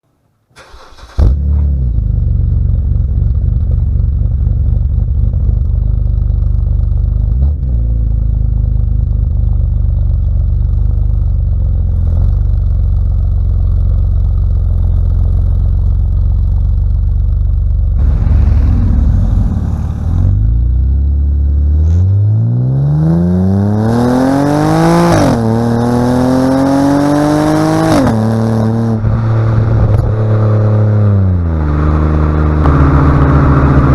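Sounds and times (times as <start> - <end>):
car engine revving through exhaust: 18.0 - 33.9.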